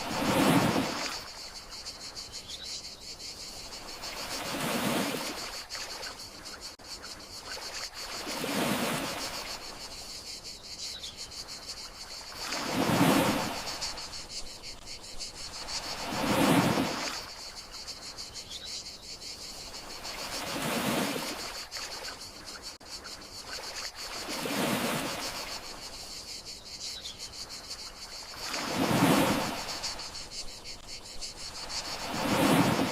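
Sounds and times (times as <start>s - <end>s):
sea waves washing in: 0.0s - 1.5s, 3.6s - 6.0s, 7.9s - 9.8s, 12.2s - 14.2s, 15.6s - 17.5s, 19.8s - 22.0s, 23.7s - 25.8s, 28.3s - 30.8s, 31.4s - 32.9s
crickets trilling: 0.0s - 32.9s.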